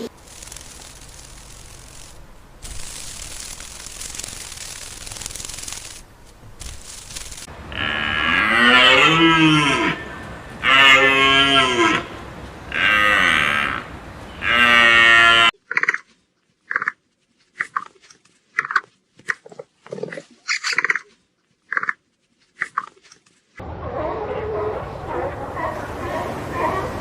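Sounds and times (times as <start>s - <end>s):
farm animal long loud calls: 7.7s - 16.0s.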